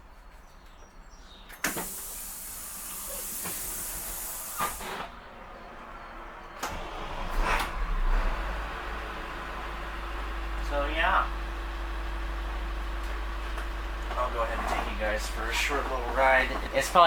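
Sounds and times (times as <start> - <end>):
diesel engine cranking and starting: 1.5 - 17.0
sharp hiss of air: 1.6 - 5.1.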